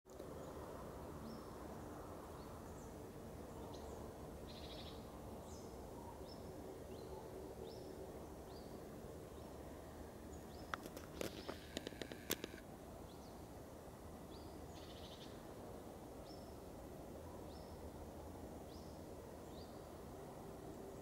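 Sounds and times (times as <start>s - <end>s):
small bird chirping: 10.4s - 13.3s
sharp clicks: 10.7s - 12.6s
low background hum: 10.8s - 12.6s.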